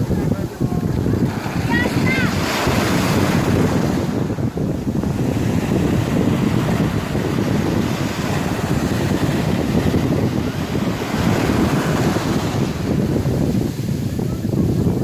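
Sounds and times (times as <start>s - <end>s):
sea waves washing: 0.0s - 15.0s
wind buffeting microphone: 0.0s - 15.0s.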